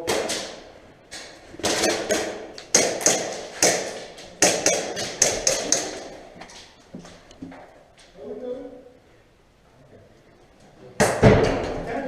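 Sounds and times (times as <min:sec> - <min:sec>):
airsoft gun shots: 0:01.6 - 0:05.9.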